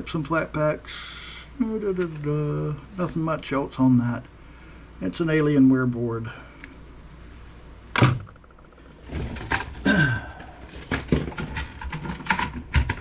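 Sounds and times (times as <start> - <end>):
computer parts knocking and clattering: 8.0 - 13.0.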